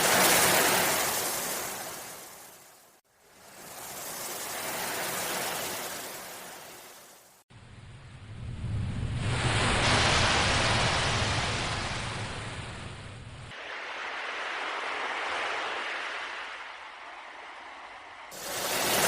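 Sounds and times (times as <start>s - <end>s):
ocean waves washing in: 0.0s - 19.0s
deep rumble: 7.6s - 13.6s.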